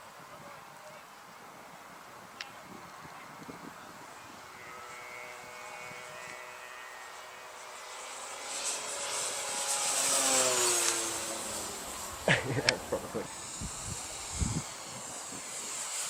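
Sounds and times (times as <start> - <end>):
model aeroplane engine droning: 0.0 - 16.0.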